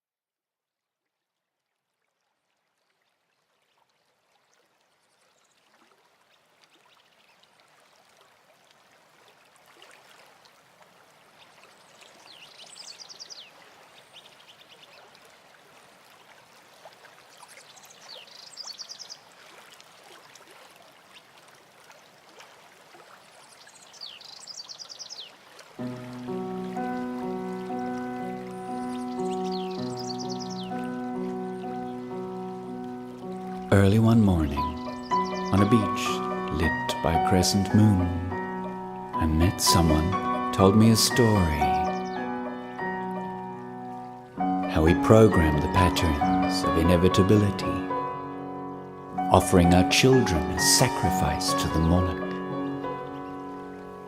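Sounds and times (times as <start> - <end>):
birds trilling: 26.4 - 36.9, 39.8 - 43.4.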